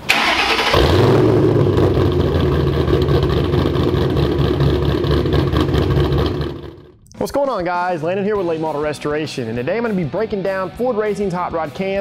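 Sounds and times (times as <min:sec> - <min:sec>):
engine cranking: 0:00.0 - 0:06.9
car engine idling: 0:00.0 - 0:07.0.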